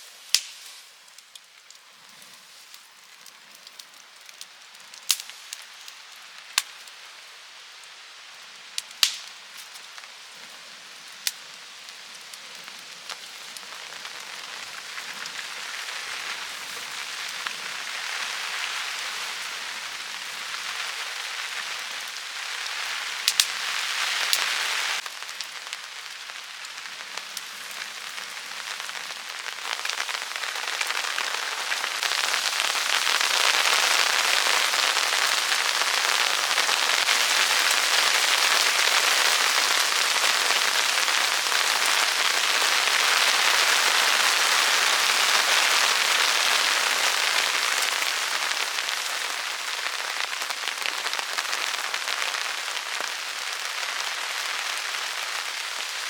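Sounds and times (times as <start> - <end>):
heavy rain pouring: 11.6 - 56.0.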